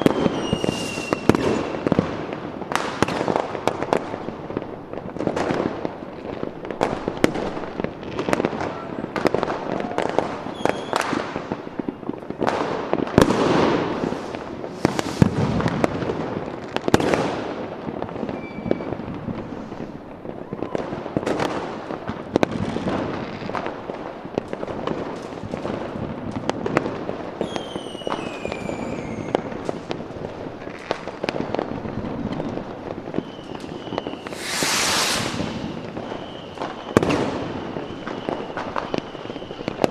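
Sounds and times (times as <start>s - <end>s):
fireworks bangs and crackles: 0.0s - 39.9s
falling whistles: 0.1s - 1.9s, 27.5s - 29.3s, 33.2s - 39.8s.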